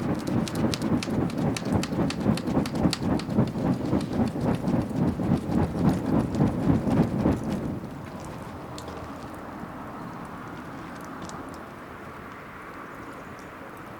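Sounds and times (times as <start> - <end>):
fire crackling and popping: 0.0 - 9.4
bonfire flames rushing: 0.0 - 11.7.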